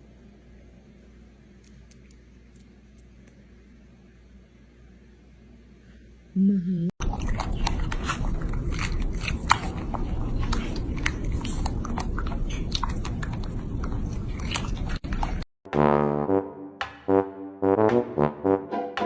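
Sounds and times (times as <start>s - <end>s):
chewing and crunching food: 7.0s - 15.5s
brass music: 15.7s - 19.0s.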